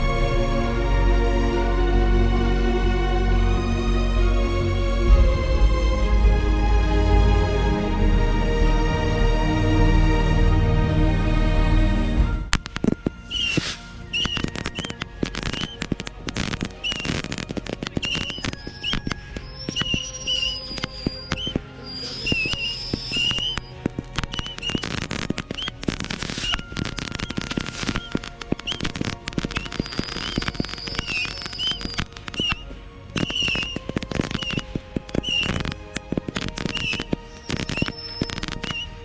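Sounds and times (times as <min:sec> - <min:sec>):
fireworks crackling and banging: 0:12.5 - 0:39.0.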